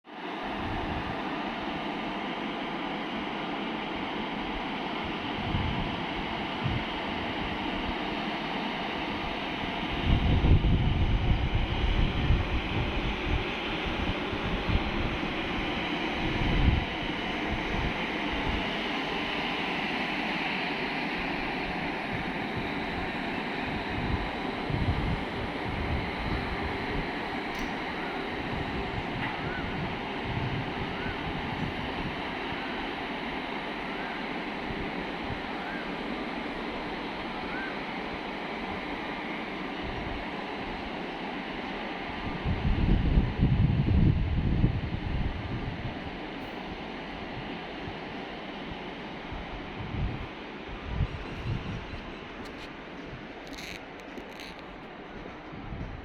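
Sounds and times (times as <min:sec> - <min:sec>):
train running: 0:00.1 - 0:56.0
wind buffeting microphone: 0:05.0 - 0:08.0, 0:09.6 - 0:19.4, 0:21.3 - 0:33.3, 0:42.1 - 0:48.1, 0:49.3 - 0:56.0.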